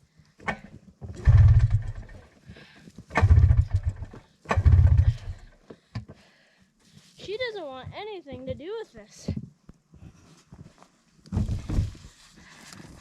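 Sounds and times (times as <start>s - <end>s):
snowmobile engine cranking: 0.4s - 2.3s, 3.1s - 5.6s.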